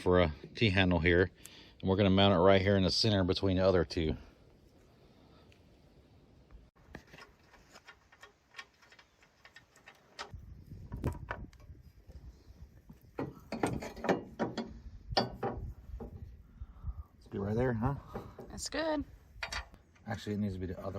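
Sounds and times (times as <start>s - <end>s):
metal knocks: 13.2s - 16.2s.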